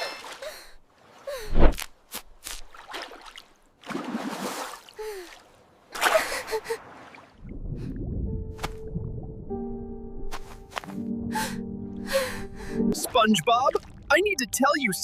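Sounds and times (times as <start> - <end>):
low rumble: 7.4 - 10.3.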